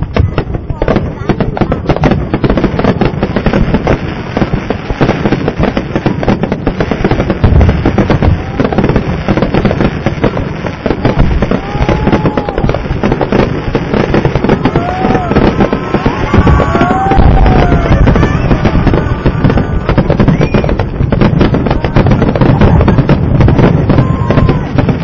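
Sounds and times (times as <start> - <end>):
fireworks bursts and crackling: 0.0 - 25.0
heavy firework booms: 0.0 - 25.0
firework whistles: 11.0 - 25.0.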